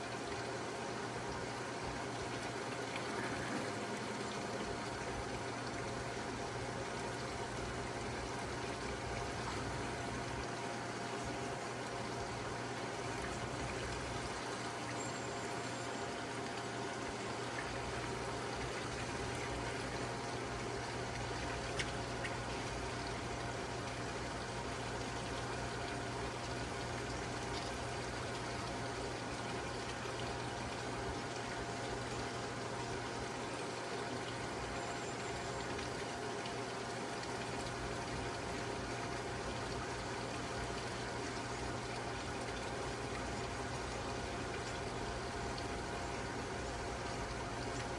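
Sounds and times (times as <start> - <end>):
mechanical hum: 0.0 - 47.9
running water rushing: 0.0 - 47.9.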